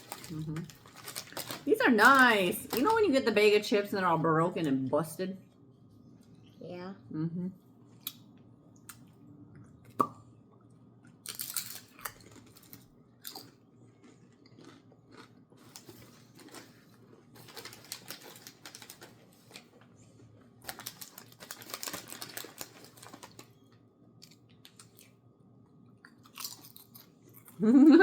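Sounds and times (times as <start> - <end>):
crunchy chips being chewed: 0.0 - 2.9, 11.0 - 19.8, 20.6 - 23.6, 24.2 - 25.2, 26.0 - 27.6.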